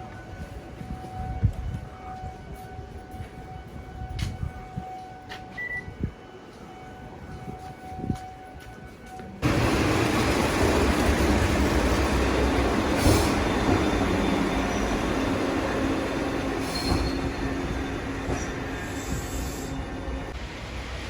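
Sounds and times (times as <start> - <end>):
train rumbling on rails: 0.0 - 21.0
high wheel squeals: 9.4 - 20.3.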